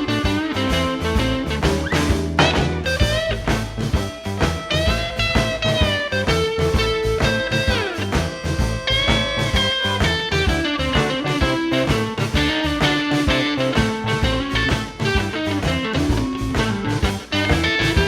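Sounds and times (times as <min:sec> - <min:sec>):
blues band instrumental: 0:00.0 - 0:18.0
lead guitar bending notes: 0:00.0 - 0:18.0.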